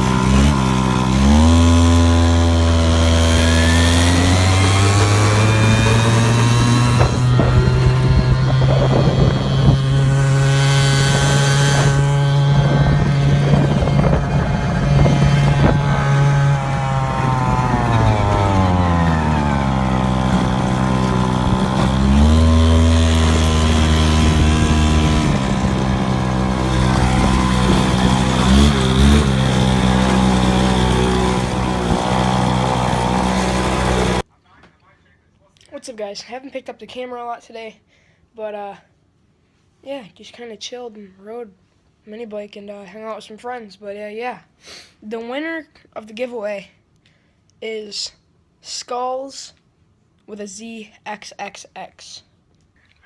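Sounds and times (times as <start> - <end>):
minibike engine running: 0.0 - 34.2.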